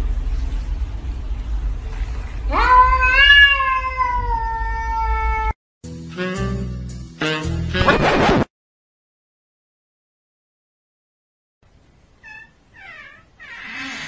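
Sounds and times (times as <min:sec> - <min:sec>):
cat meowing: 0:02.5 - 0:05.6, 0:12.2 - 0:14.0.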